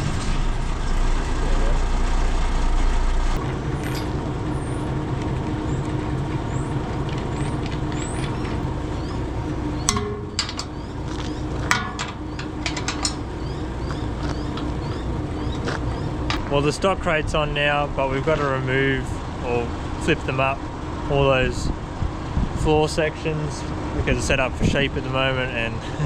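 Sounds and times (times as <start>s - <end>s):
truck engine rumbling: 0.0s - 26.0s
sharp knocks: 9.9s - 13.2s.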